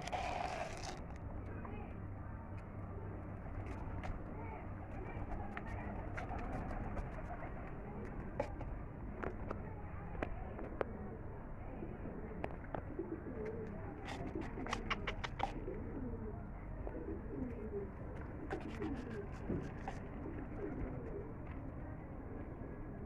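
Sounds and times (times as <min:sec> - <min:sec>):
pigeons cooing: 0:00.0 - 0:01.0, 0:10.6 - 0:21.6.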